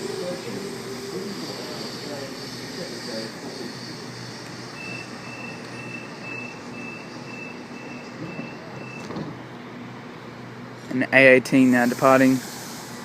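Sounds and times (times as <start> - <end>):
train humming: 0.0 - 11.0, 11.8 - 13.0
short high beeps: 4.8 - 9.1.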